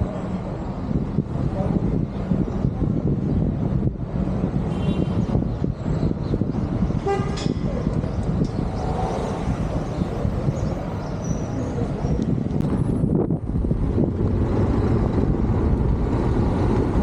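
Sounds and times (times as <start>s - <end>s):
road traffic rumble: 0.0s - 17.0s
vehicle horn toot: 4.7s - 5.3s, 7.0s - 7.6s.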